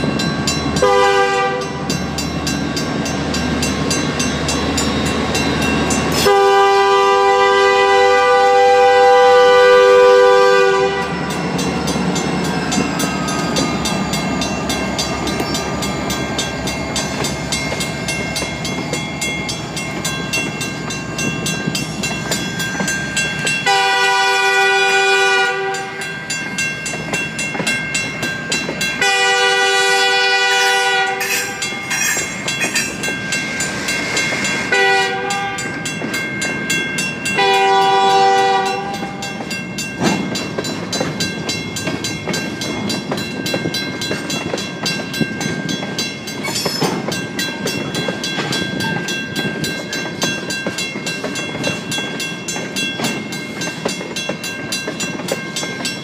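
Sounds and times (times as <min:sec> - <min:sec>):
crossing signal bell ringing: 0:00.0 - 0:56.0
locomotive horn blasts: 0:00.8 - 0:01.9, 0:06.2 - 0:11.2, 0:23.6 - 0:26.0, 0:29.0 - 0:32.2, 0:34.7 - 0:35.8, 0:37.4 - 0:39.3.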